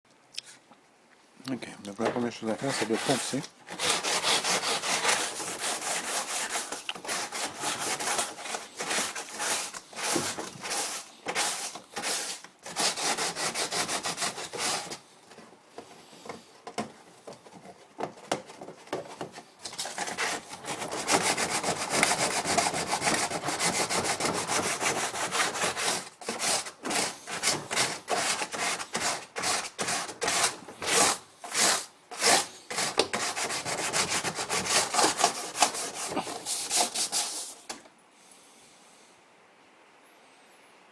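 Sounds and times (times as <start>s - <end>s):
sandpaper scraping: 2.3s - 15.0s, 19.1s - 37.7s.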